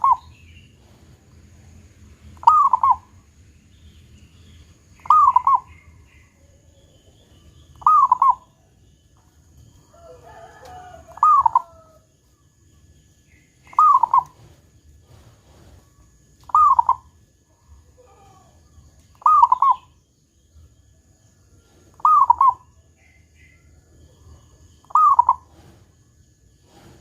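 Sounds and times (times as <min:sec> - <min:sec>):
dove cooing: 0:00.0 - 0:00.4, 0:02.4 - 0:03.2, 0:05.0 - 0:08.7, 0:10.1 - 0:12.0, 0:13.7 - 0:14.5, 0:16.4 - 0:18.6, 0:19.2 - 0:19.9, 0:21.9 - 0:22.7, 0:24.2 - 0:25.8.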